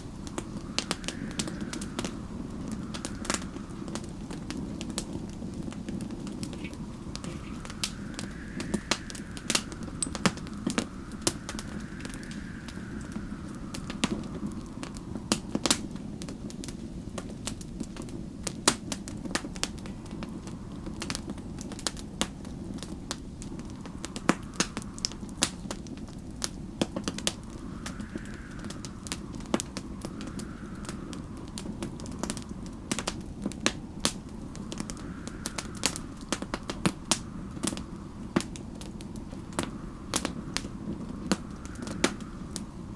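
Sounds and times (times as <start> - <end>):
faint wind whistling: 0.0 - 42.9
wood fire crackling: 0.0 - 42.9.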